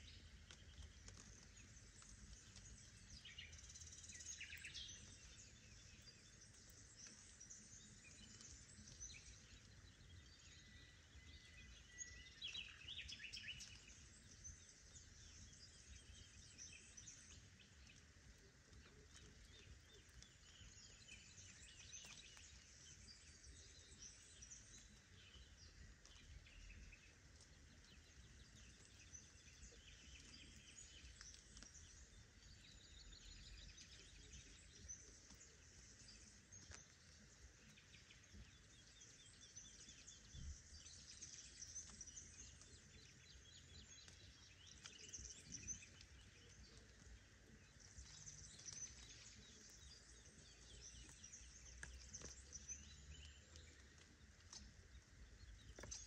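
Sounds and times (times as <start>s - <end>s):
birds chirping and trilling: 18.8s - 56.0s.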